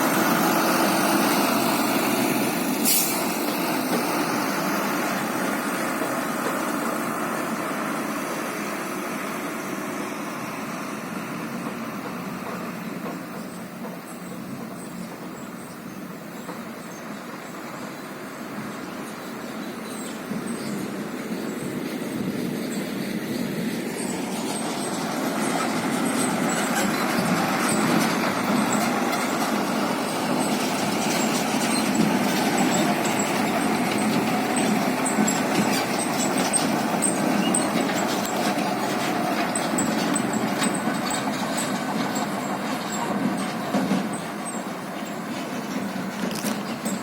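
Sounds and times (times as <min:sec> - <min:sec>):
dump truck rumbling: 0:00.0 - 0:47.0
truck squeaks and rattles: 0:10.8 - 0:18.0, 0:19.6 - 0:47.0.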